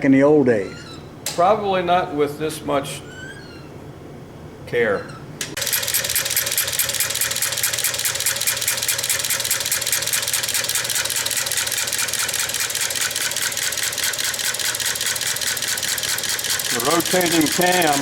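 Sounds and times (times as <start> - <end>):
ignition gear clicking rhythmically: 5.6 - 18.0.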